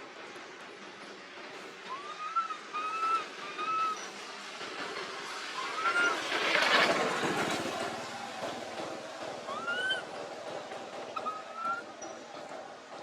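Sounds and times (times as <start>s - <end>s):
monkey coo calls: 9.5s - 10.1s, 11.2s - 11.9s.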